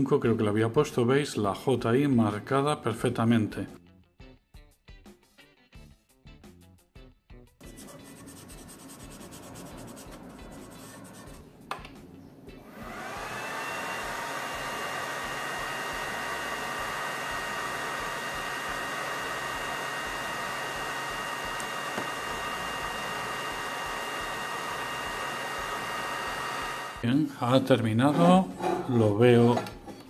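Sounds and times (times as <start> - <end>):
marker rubbing on metal plate: 7.6 - 11.5
cooling fan whoosh and whine: 12.4 - 27.0.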